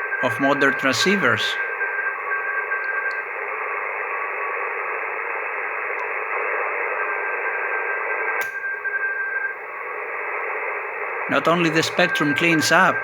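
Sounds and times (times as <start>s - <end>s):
radio band hiss: 0.0s - 8.4s, 9.6s - 13.0s
thin steady carrier tone: 9.6s - 13.0s.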